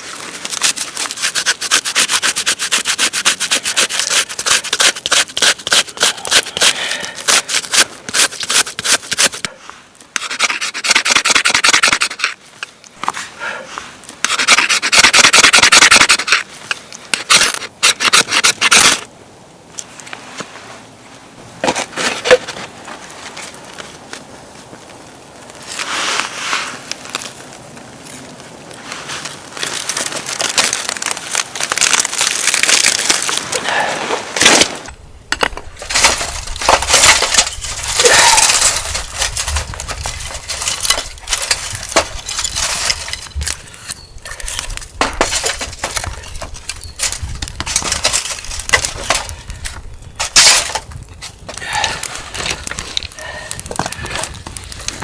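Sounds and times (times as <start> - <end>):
crunching and snapping handling: 21.6 - 55.0.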